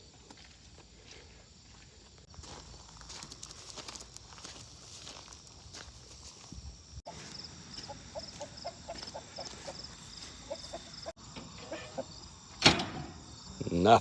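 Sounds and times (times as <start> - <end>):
crickets chirping: 0.0 - 14.0
chickens clucking: 7.1 - 13.9.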